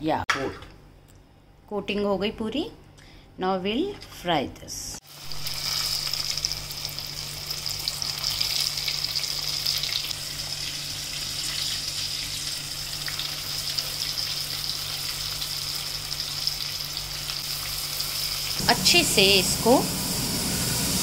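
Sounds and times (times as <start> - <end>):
chicken deep-frying in oil: 5.0 - 21.0
low steady hum: 18.6 - 21.0.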